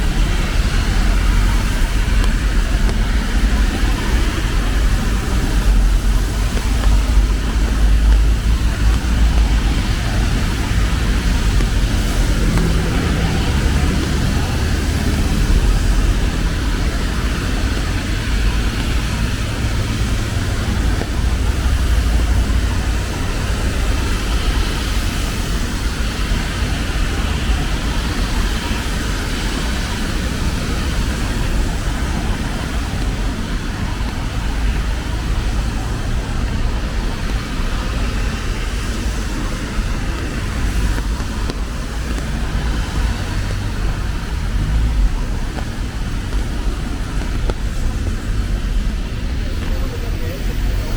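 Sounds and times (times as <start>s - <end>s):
rain hiss: 0.0s - 50.9s
traffic rumble: 0.0s - 50.9s
wet tyres on road: 0.0s - 50.9s.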